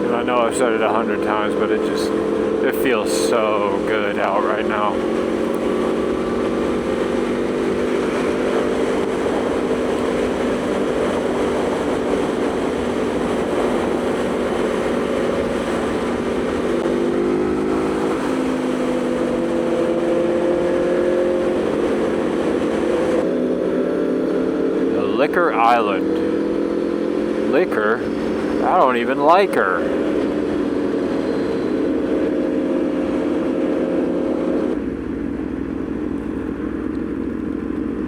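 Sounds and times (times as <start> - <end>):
motorcycle engine cruising: 0.0 - 38.0
wind noise: 1.4 - 23.3.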